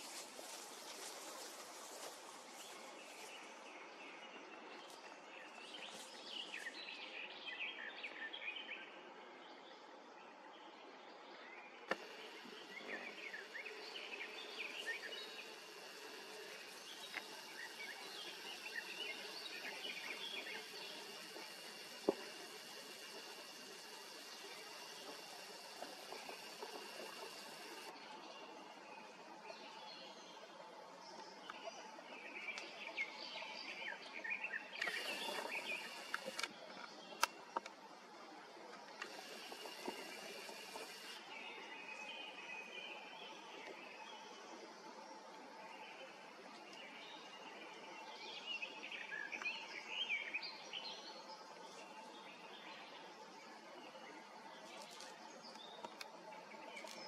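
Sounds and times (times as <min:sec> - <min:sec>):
faint hiss: 0:00.0 - 0:08.0, 0:11.9 - 0:29.9, 0:32.4 - 0:57.0
birds singing: 0:11.9 - 0:27.9, 0:32.3 - 0:36.5.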